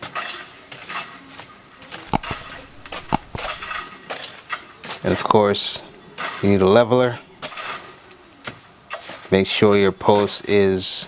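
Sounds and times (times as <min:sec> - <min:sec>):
stick scraping wet cement: 0:02.1 - 0:03.8.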